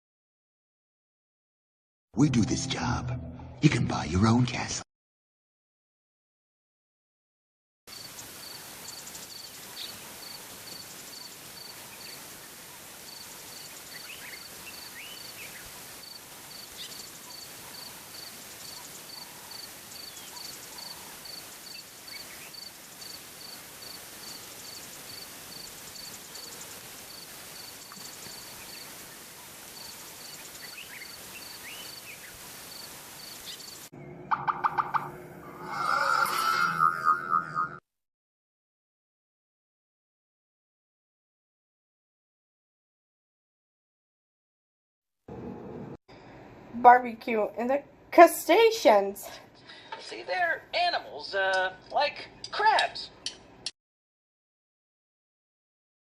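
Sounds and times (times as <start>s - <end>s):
even outdoor hiss: 7.9s - 34.1s.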